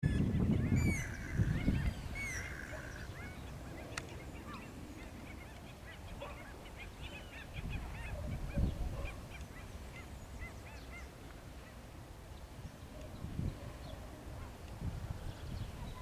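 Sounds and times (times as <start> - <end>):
flock of birds calling: 0.1 - 11.2.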